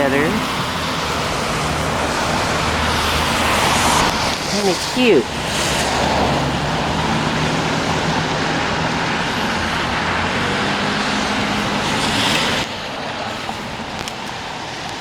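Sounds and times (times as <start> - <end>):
road noise: 0.0 - 15.0
vehicle engine hum: 0.0 - 15.0.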